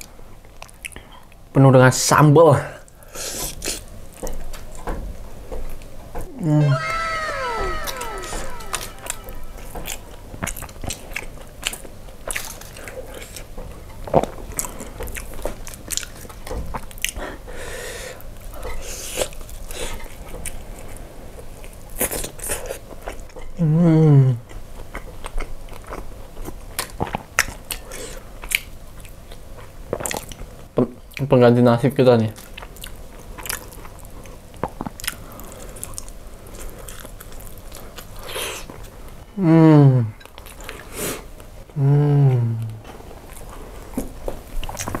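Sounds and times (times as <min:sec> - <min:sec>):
person humming: 0:06.3 - 0:09.9, 0:41.8 - 0:42.8.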